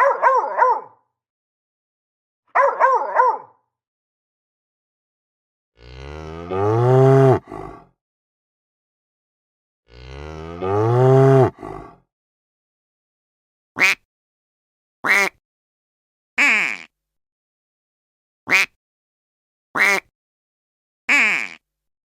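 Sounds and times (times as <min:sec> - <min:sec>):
dog yelping: 0:00.0 - 0:00.9, 0:02.6 - 0:03.5
cow mooing: 0:05.8 - 0:07.9, 0:09.9 - 0:12.0.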